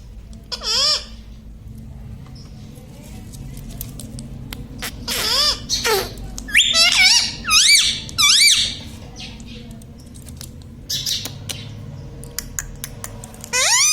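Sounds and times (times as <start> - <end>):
parakeet squawking: 0.5 - 1.2, 4.8 - 9.5, 10.9 - 11.8, 13.5 - 13.9.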